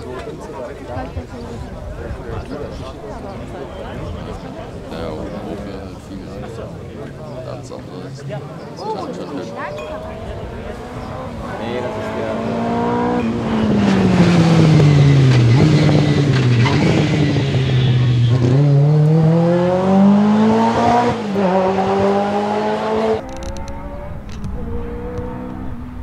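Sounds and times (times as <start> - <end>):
distant car engine steady: 6.4 - 26.0
car engine accelerating: 7.2 - 26.0.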